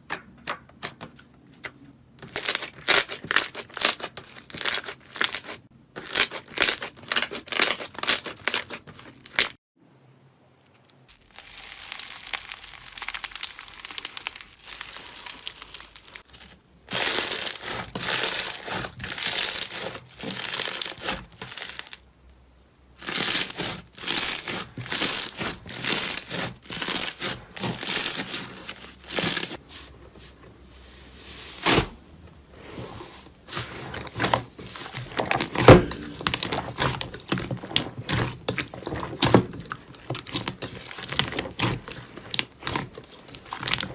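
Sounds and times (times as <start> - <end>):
slime crackling and popping: 11.1 - 22.0, 34.2 - 43.9.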